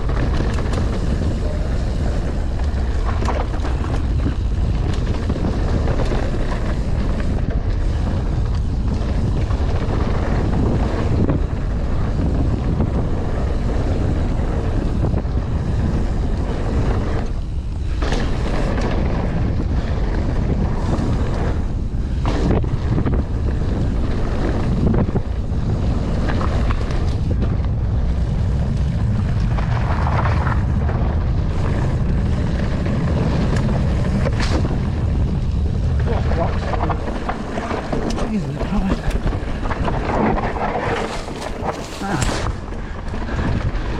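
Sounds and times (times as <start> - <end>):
wind rushing over microphone: 0.0 - 43.9
bike knocking over rough ground: 38.9 - 43.8.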